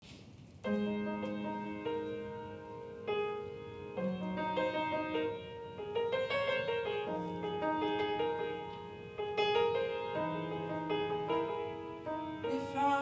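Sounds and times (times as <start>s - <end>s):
solo piano chords: 0.5s - 13.0s.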